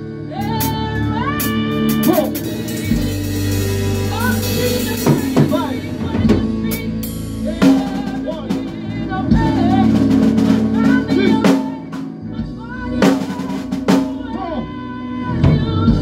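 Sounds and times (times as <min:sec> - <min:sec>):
live band playing: 0:00.0 - 0:16.0
sharp drum hits: 0:01.4 - 0:06.8.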